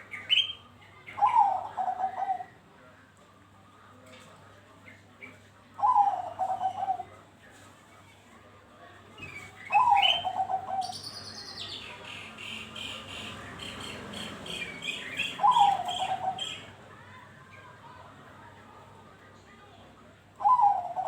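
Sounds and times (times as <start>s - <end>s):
dove cooing: 1.2s - 2.6s, 5.8s - 7.1s, 9.7s - 11.1s, 12.8s - 16.8s, 20.4s - 21.0s
bird chirping high: 9.8s - 16.7s.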